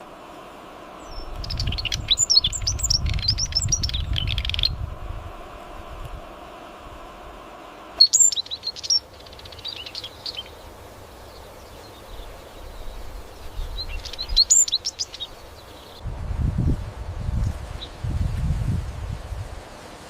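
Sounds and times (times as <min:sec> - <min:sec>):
outdoor ambience: 0:00.0 - 0:20.0
bird chirping: 0:01.0 - 0:04.8, 0:08.0 - 0:16.0.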